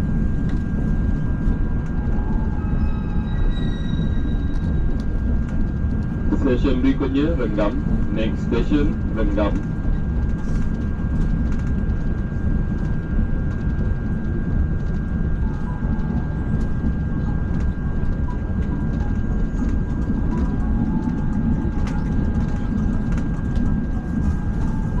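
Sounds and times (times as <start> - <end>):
high whine: 0.0 - 25.0
train rumble: 0.0 - 25.0.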